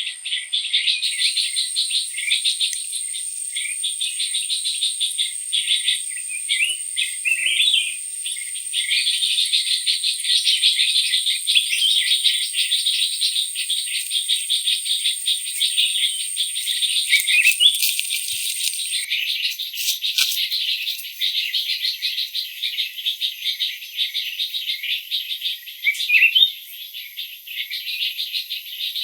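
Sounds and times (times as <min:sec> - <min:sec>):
fast insect chirping: 0:00.0 - 0:19.1
high insect whine: 0:00.0 - 0:19.1.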